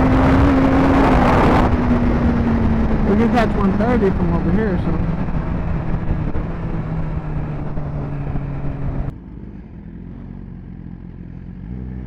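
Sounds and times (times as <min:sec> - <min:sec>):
wind noise on microphone: 0:00.0 - 0:09.1
motorcycle engine cruising: 0:00.0 - 0:12.0.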